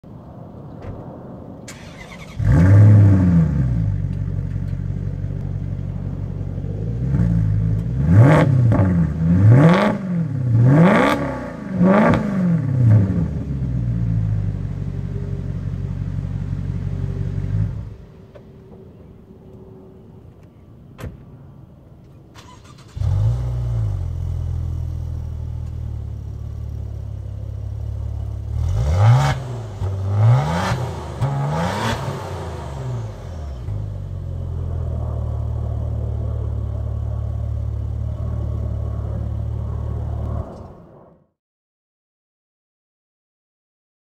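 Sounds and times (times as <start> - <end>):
car engine starting and revving: 1.7 - 18.3, 22.4 - 40.8
car engine idling: 3.2 - 9.5, 13.3 - 20.6, 22.5 - 40.4.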